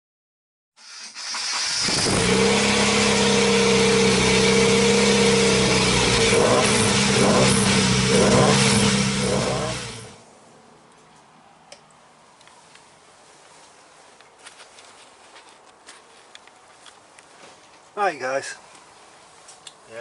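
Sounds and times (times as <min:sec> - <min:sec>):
car engine running: 0:01.6 - 0:10.2.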